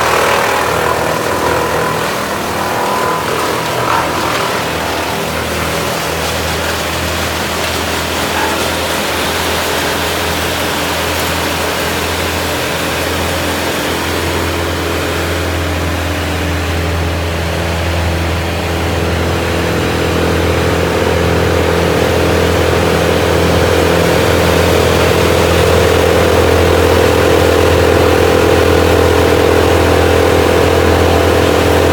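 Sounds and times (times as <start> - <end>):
tree chipper engine running: 0.0 - 31.9.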